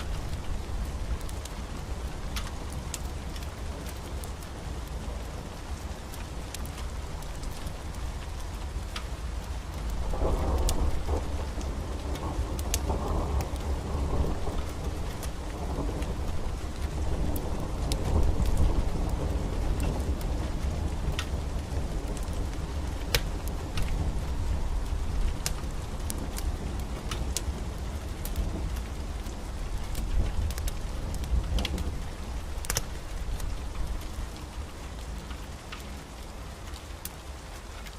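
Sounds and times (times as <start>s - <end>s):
steady rain: 0.0s - 37.9s
rolling thunder: 10.0s - 34.0s.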